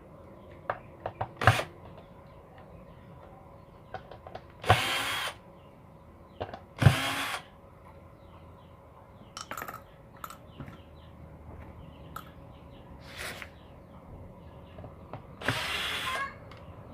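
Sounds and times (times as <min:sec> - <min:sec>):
electric screwdriver whirring: 0:04.6 - 0:05.4, 0:06.8 - 0:07.4, 0:15.4 - 0:16.2.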